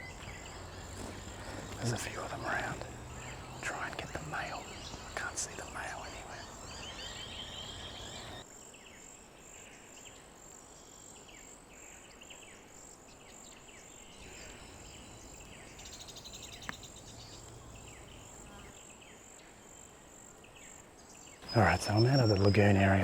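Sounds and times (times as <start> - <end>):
high insect chirping: 0.0 - 8.4, 14.1 - 18.8, 21.4 - 23.0.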